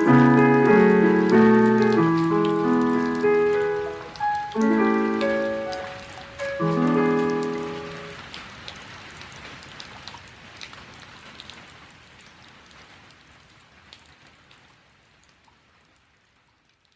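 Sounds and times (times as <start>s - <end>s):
keyboard piano chord: 0.0s - 8.2s
rain falling: 0.0s - 16.9s.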